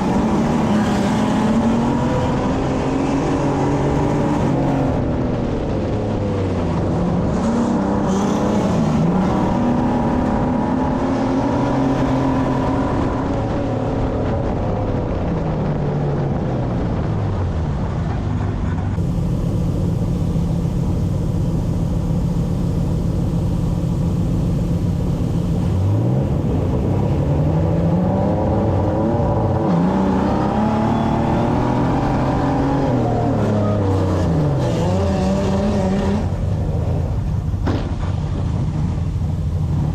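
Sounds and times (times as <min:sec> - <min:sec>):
race car engine revving: 0:19.0 - 0:36.6.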